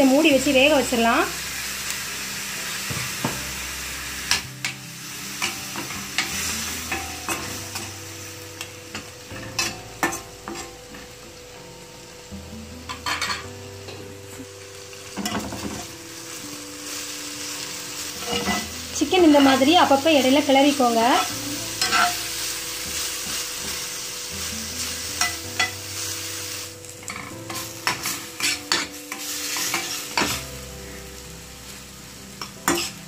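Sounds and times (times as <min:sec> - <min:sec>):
chicken frying in pan: 0:00.0 - 0:33.0
food sizzling in oil: 0:00.0 - 0:33.0
metal spatula scraping a pan: 0:18.0 - 0:20.4, 0:21.1 - 0:22.3, 0:26.9 - 0:31.0, 0:32.4 - 0:33.0.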